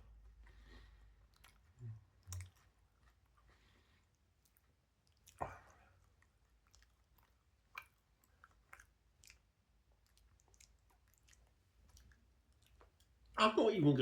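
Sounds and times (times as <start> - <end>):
person chewing: 0.0 - 13.4
wet mouth clicks: 1.2 - 2.8, 4.4 - 13.3.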